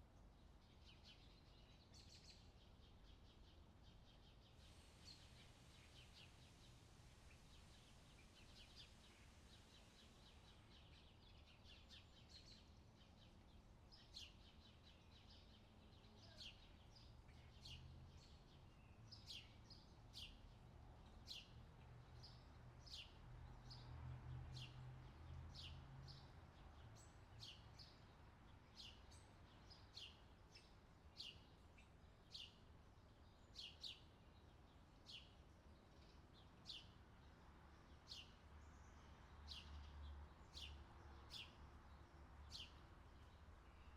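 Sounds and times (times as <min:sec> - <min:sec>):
bird chirping: 0:37.8 - 0:43.9.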